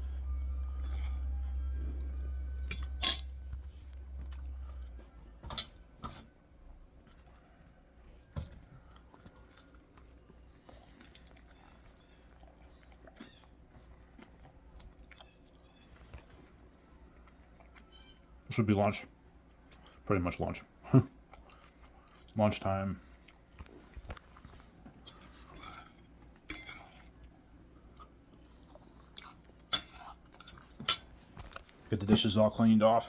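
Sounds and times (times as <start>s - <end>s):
chewing: 0.0s - 6.2s, 6.9s - 18.4s, 19.3s - 20.0s, 20.9s - 31.8s
low hum: 0.0s - 7.1s
cutlery clinking on a dish: 2.7s - 3.3s, 5.4s - 6.2s, 25.5s - 27.1s, 29.7s - 31.1s.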